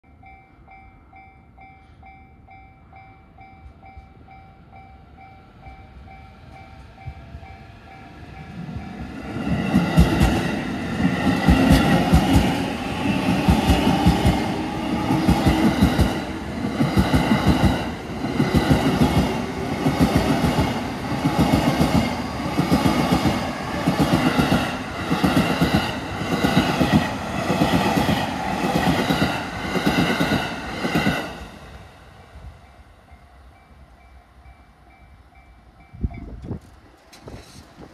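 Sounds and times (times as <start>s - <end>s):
level crossing warning bell: 0.0s - 9.2s.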